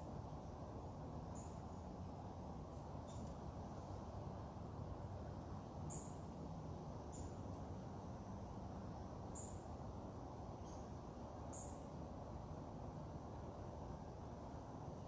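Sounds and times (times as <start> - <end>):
small bird chip calls: 3.0 - 3.4, 5.9 - 6.2, 7.1 - 7.5, 10.6 - 11.9.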